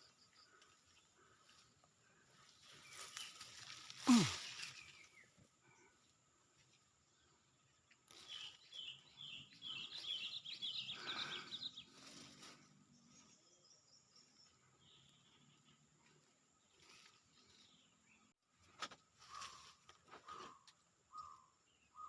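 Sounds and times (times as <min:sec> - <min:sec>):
bird chirping: 0:07.1 - 0:18.4, 0:19.2 - 0:22.0.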